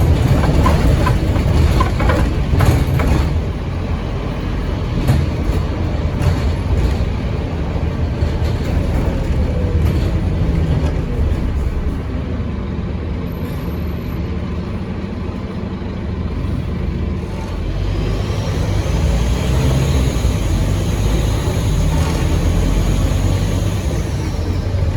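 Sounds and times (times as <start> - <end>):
clicks and rattles: 0.0 - 3.6
bus diesel engine running: 0.0 - 24.9.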